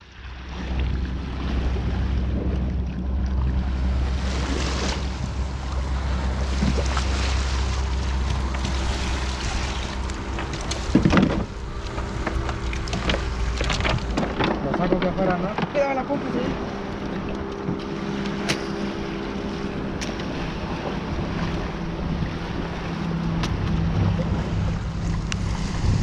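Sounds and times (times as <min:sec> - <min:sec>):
boat engine hum: 0:00.0 - 0:26.0
water noise: 0:00.0 - 0:26.0
wind blowing across microphone: 0:19.6 - 0:26.0.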